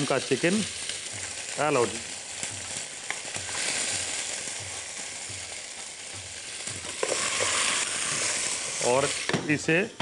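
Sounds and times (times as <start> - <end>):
chicken sizzling in hot oil: 0.0 - 10.0
spices popping: 0.0 - 10.0.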